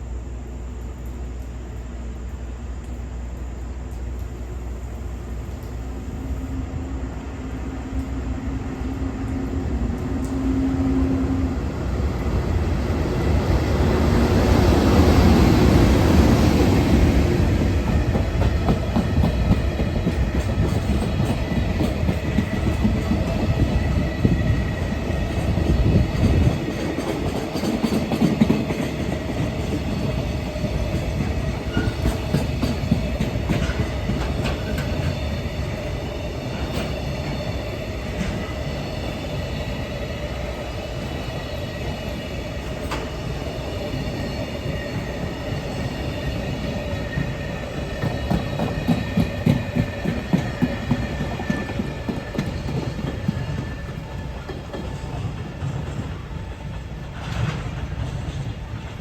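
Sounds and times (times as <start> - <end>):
freight train wheels rumbling: 0.0 - 59.0
wheels clicking over rail joints: 14.6 - 39.9, 40.9 - 59.0.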